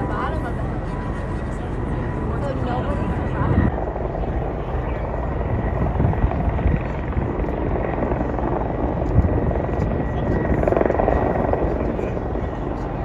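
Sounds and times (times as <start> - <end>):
helicopter flying: 0.0 - 13.0.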